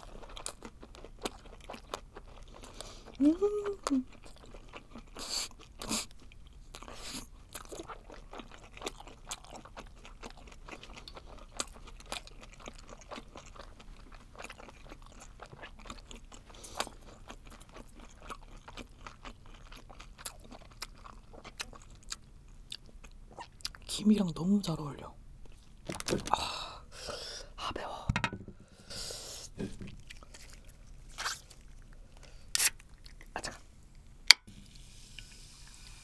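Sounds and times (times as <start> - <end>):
close chewing with wet squelches: 0.0 - 24.0, 29.6 - 33.5.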